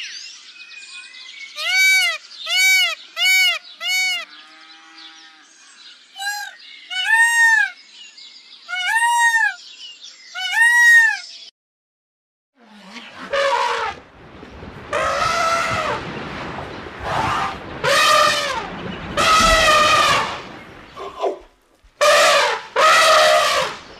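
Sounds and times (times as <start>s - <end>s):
peacock calling: 1.6s - 5.0s, 6.2s - 7.8s, 8.6s - 9.7s, 10.3s - 11.4s, 17.1s - 23.9s.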